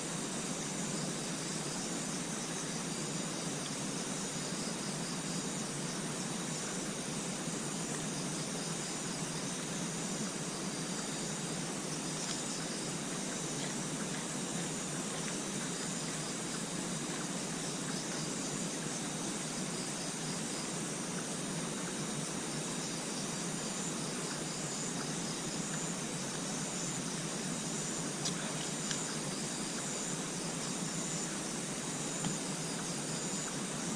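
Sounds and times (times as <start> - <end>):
insects trilling: 0.0 - 33.9
steady outdoor hiss: 0.0 - 33.9.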